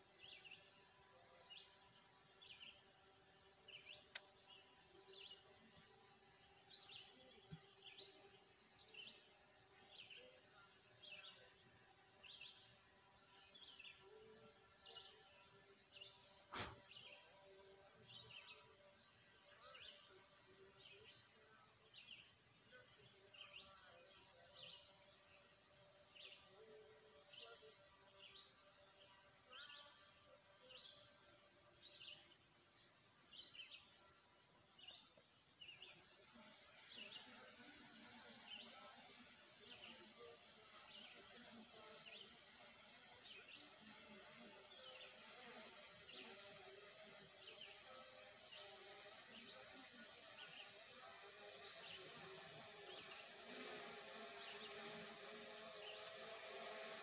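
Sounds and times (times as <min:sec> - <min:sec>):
bird chirping: 0:00.1 - 0:17.3, 0:31.8 - 0:57.0.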